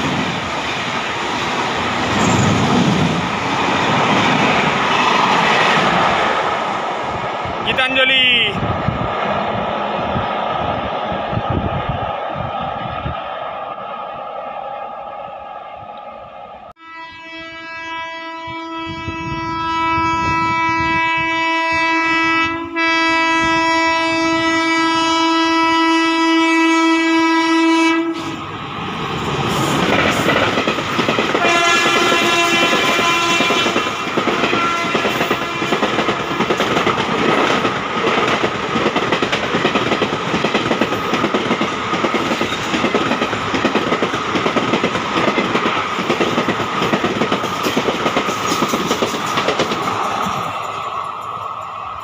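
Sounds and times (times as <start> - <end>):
train wheels clattering on rails: 0.0 - 6.4, 29.0 - 52.0
train horn blasts: 16.8 - 28.3, 31.4 - 35.8.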